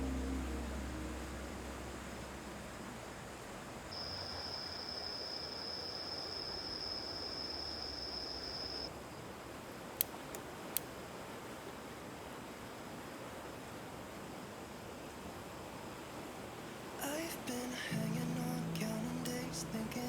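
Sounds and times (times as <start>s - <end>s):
steady high-pitched tone: 0.0s - 6.3s.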